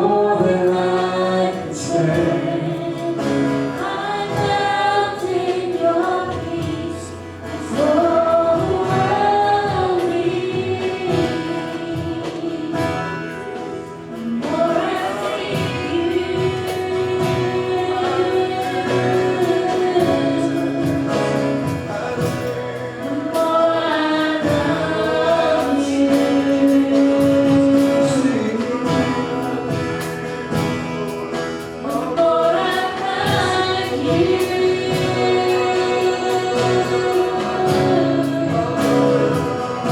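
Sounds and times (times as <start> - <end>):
gospel singing: 0.0 - 39.9
instrumental accompaniment: 0.0 - 39.9.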